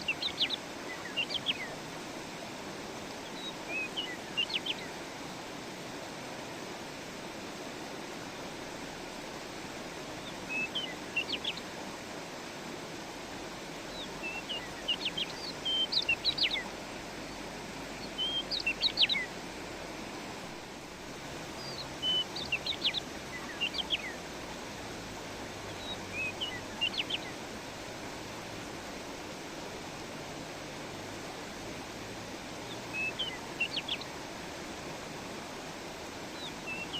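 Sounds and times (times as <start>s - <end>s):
songbird chirping: 0.0s - 1.8s, 10.2s - 11.7s, 13.9s - 19.4s, 21.5s - 24.3s, 25.6s - 27.4s, 32.6s - 34.2s, 36.3s - 36.9s
stream water flowing: 0.0s - 36.9s.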